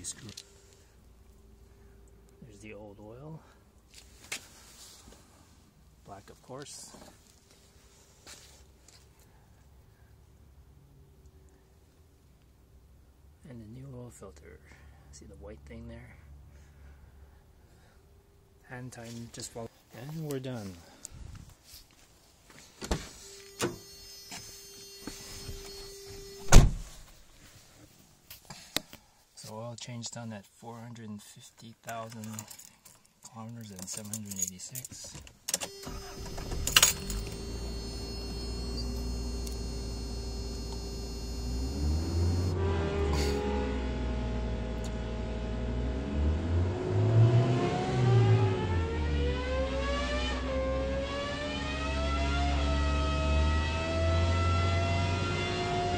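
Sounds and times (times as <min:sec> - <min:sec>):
single-tone warning buzzer: 0:23.3 - 0:26.6, 0:35.6 - 0:42.6
car door clunks: 0:26.4 - 0:26.9
engine revving: 0:35.8 - 0:55.9.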